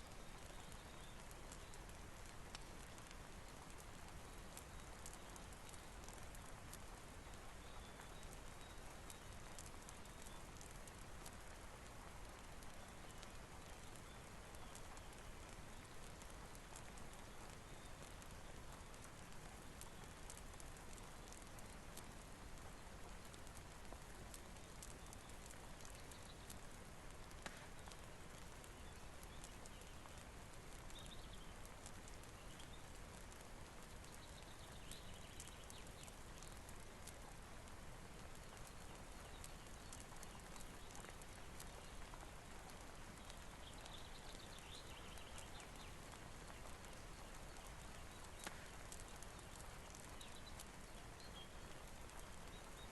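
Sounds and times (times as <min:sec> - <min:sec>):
faint rain hiss: 0:00.0 - 0:52.9.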